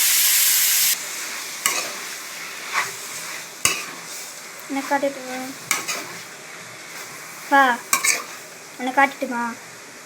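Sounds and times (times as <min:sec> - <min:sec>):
chicken sizzling in hot oil: 0:00.0 - 0:10.0
spoon scraping a pan: 0:01.2 - 0:08.6.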